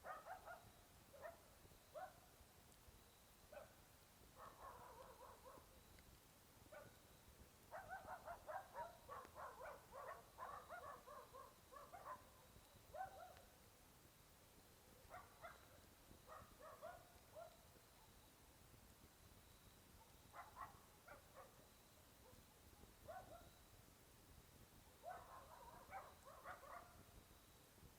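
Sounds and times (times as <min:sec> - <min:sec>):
distant dog barking: 0:00.0 - 0:02.4, 0:03.5 - 0:05.8, 0:06.7 - 0:07.0, 0:07.7 - 0:13.5, 0:14.9 - 0:18.2, 0:19.9 - 0:23.6, 0:24.8 - 0:27.0.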